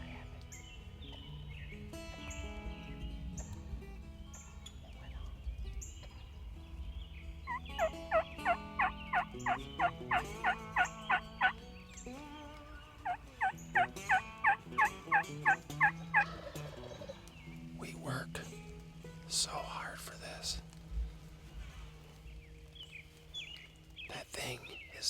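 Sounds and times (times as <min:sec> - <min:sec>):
soft background music: 0:00.0 - 0:25.0
wild turkey yelps: 0:07.5 - 0:11.6, 0:13.0 - 0:17.2.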